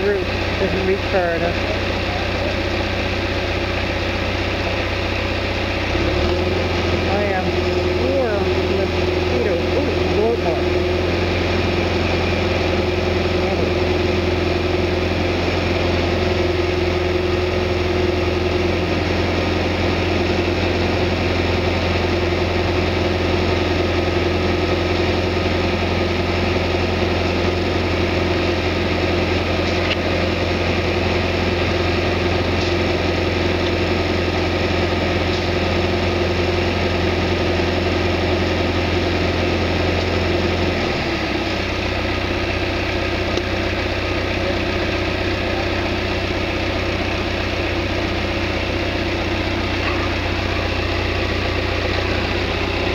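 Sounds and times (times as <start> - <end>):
backhoe engine running: 0.0 - 52.9.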